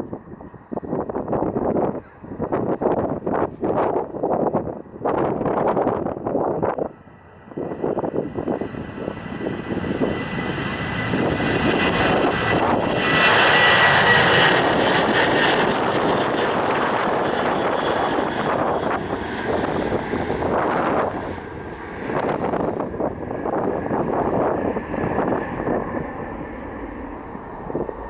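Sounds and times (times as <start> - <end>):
airliner engines passing: 0.0 - 28.0.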